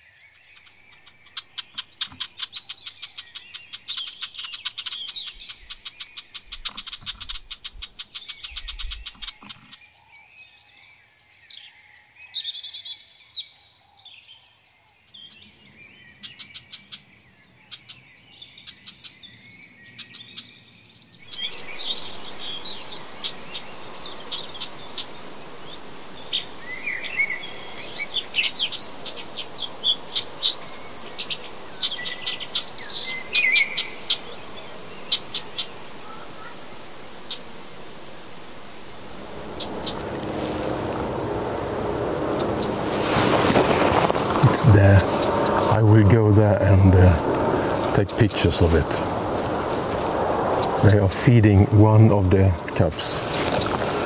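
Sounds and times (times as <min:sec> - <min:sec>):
small birds chirping: 0:00.0 - 0:54.0
steady background hiss: 0:21.2 - 0:54.0
rapid ticking trill: 0:21.3 - 0:43.0.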